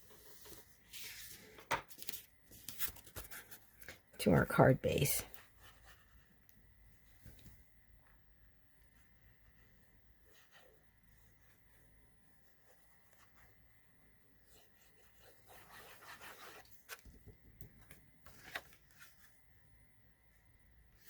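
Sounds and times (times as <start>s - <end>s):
cardstock rustling: 15.8s - 19.4s.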